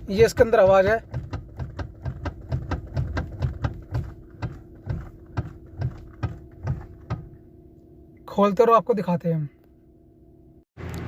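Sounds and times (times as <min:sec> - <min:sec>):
power steering column knocking: 0:00.0 - 0:07.4.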